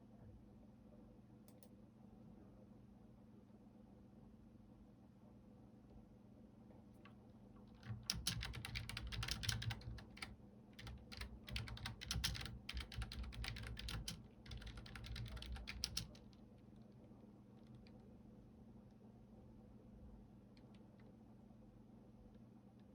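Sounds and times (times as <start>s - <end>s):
computer keyboard typing: 7.7s - 18.1s.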